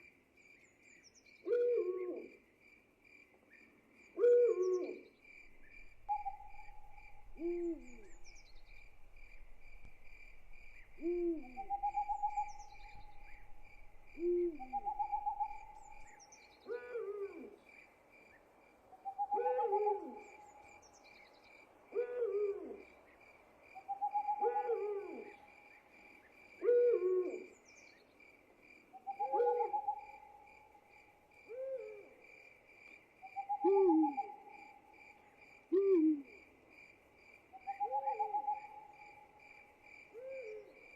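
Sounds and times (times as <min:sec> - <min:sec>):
owl hooting: 0:01.5 - 0:02.3, 0:05.6 - 0:17.6, 0:19.0 - 0:20.5, 0:23.9 - 0:25.4, 0:26.6 - 0:27.6, 0:29.0 - 0:30.4, 0:33.3 - 0:34.5, 0:35.7 - 0:36.4, 0:37.6 - 0:38.9
crickets trilling: 0:05.3 - 0:16.4.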